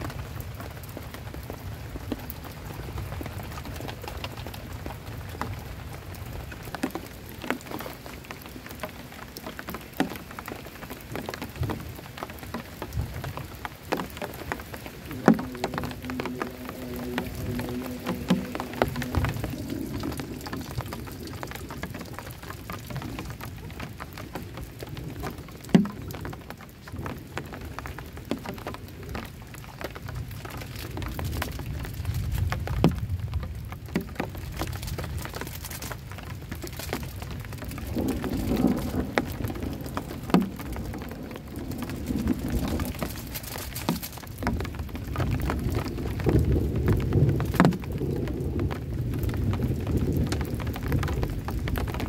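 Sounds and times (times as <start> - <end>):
heavy rain on shelter: 0.0 - 52.0
heavy raindrop landing: 0.0 - 52.0
thunder rumbling: 11.4 - 29.4, 30.0 - 52.0.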